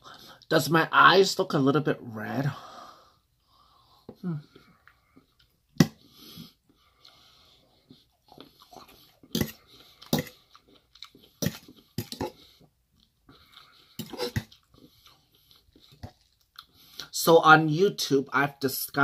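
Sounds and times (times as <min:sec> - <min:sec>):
wet chewing: 0:06.7 - 0:17.1.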